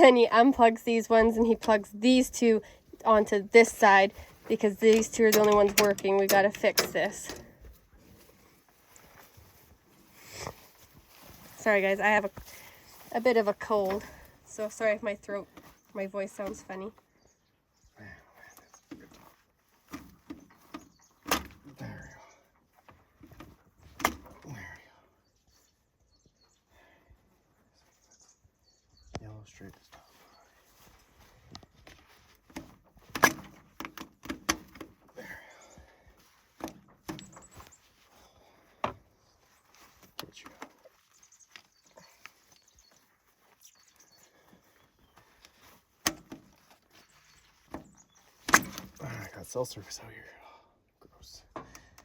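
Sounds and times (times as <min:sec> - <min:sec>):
metal hose couplers clunking: 0:04.5 - 0:07.5
light clicks and knocks: 0:04.6 - 0:07.6.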